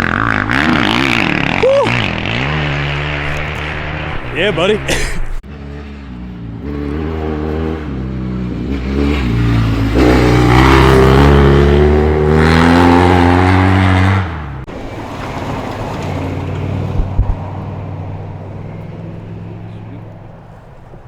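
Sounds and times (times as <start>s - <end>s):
rally car engine revving: 0.0s - 21.0s
low steady engine drone: 14.6s - 21.0s.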